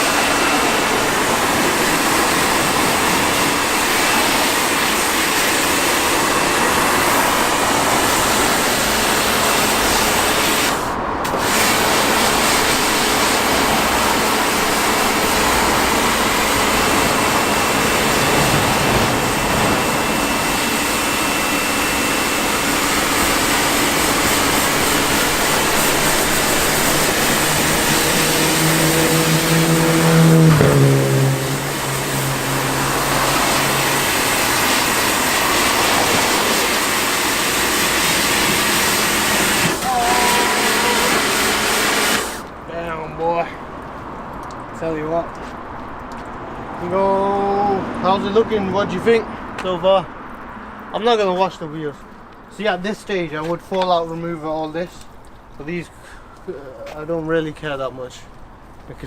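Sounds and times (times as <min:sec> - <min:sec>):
water spray hissing on car: 0:00.0 - 0:42.6.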